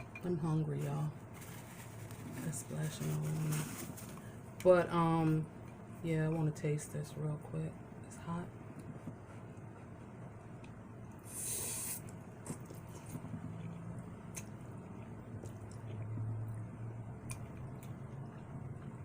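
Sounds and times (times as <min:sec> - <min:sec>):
wet chewing: 0:12.0 - 0:19.0.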